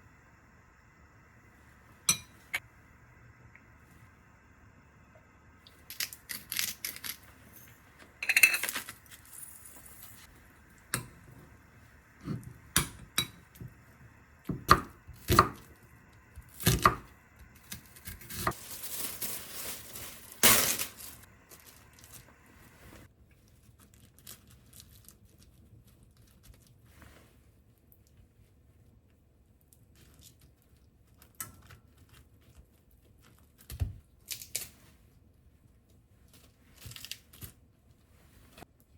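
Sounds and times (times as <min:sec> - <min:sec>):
tableware clinking: 0:08.2 - 0:10.2
scraping or rustling: 0:18.4 - 0:23.1.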